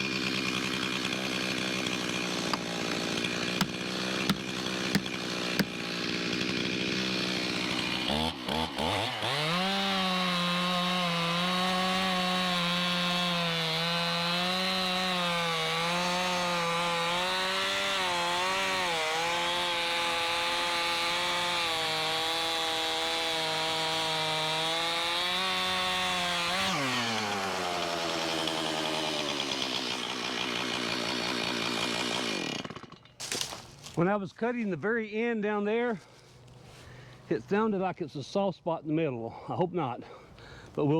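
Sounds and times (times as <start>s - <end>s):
chainsaw idling: 0.0s - 34.0s
chainsaw cutting log: 0.0s - 34.1s.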